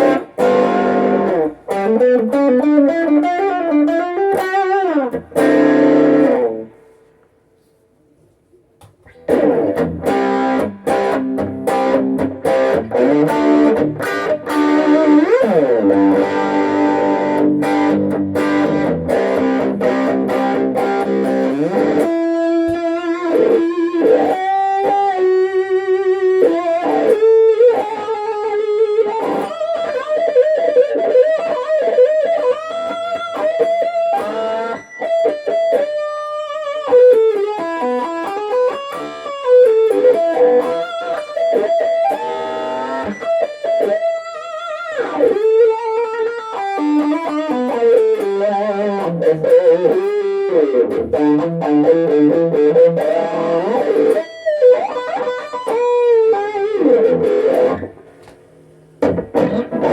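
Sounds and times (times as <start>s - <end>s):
electric guitar chords: 0.0s - 7.1s, 9.0s - 59.9s
electric guitar lead line: 0.0s - 7.1s, 9.0s - 59.9s.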